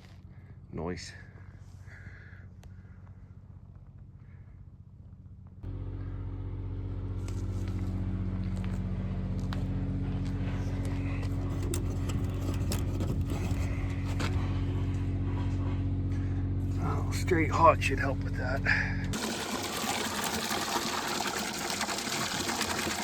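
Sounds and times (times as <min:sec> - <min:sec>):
engine running steadily: 0:00.0 - 0:19.9
clicks and rattles: 0:11.3 - 0:14.4.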